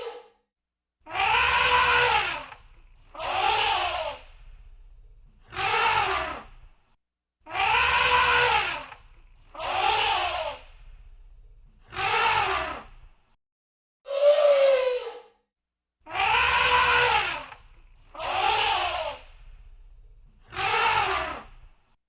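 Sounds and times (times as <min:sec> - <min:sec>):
elephant trumpeting: 0:01.1 - 0:04.2, 0:07.5 - 0:09.0, 0:16.1 - 0:17.6, 0:20.5 - 0:21.5.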